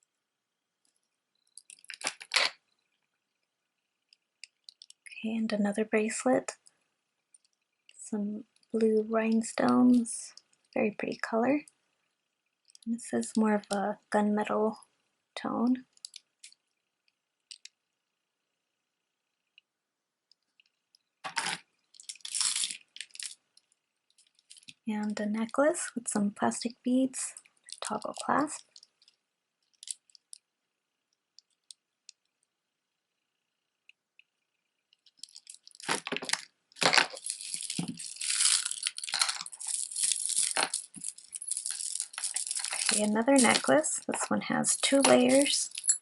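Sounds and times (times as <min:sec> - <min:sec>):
packaging rustling and crinkling: 0:01.7 - 0:02.6, 0:21.2 - 0:23.4, 0:35.1 - 0:44.2
jewelry clicking: 0:37.2 - 0:43.7, 0:44.8 - 0:46.0.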